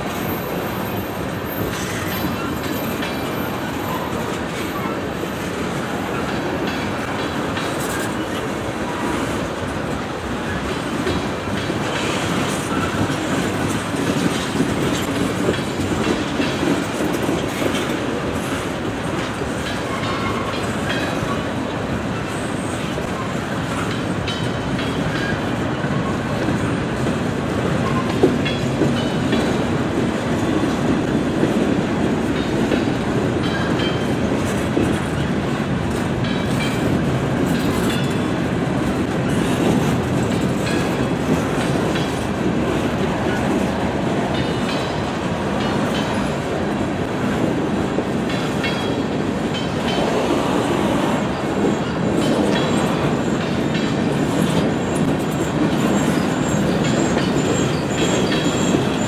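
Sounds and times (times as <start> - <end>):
freight train wheels rumbling: 0.0 - 59.0
wheels clacking over rail joints: 0.0 - 59.0
high wheel squeal: 54.7 - 59.0.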